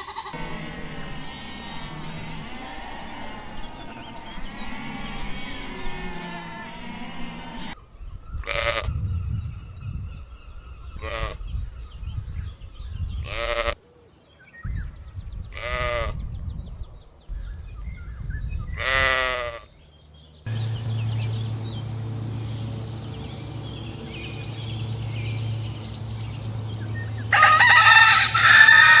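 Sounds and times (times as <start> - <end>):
farm animals calling: 0.0 - 7.8, 11.0 - 11.5, 13.2 - 13.8, 15.5 - 16.2, 18.7 - 19.7, 20.5 - 29.0
steady low hum: 0.3 - 7.8, 20.5 - 29.0
high chirping: 20.5 - 29.0.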